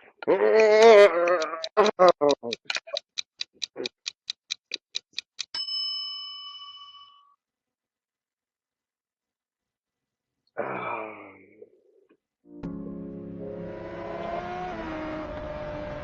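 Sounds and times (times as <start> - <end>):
clock-like ticking: 0.2 - 5.7
bell ding: 5.6 - 7.3.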